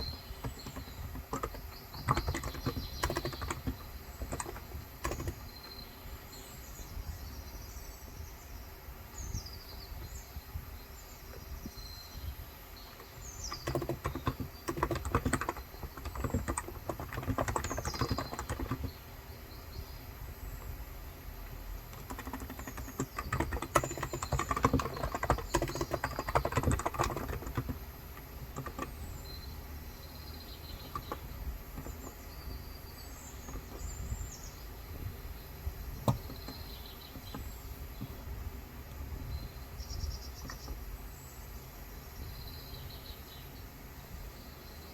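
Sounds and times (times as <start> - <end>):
keyboard keystrokes: 0.0 - 5.5, 13.0 - 19.0, 21.9 - 29.1, 36.0 - 38.2
birds chirping: 0.0 - 44.9.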